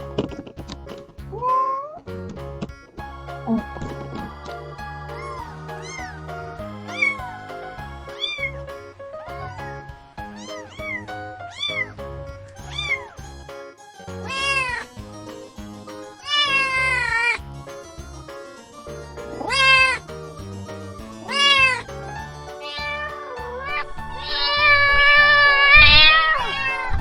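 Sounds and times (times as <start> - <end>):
background music with steady beat: 0.0 - 27.0
cats meowing: 10.3 - 11.9, 12.6 - 13.2, 19.4 - 20.0, 21.3 - 21.9, 22.5 - 27.0.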